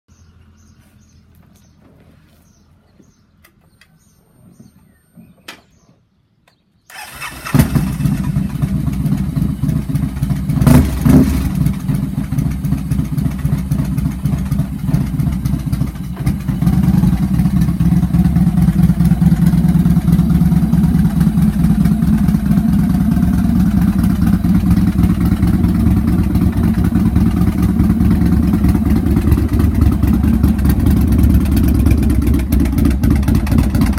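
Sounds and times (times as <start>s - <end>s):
motorcycle engine starting and idling: 6.9s - 33.9s.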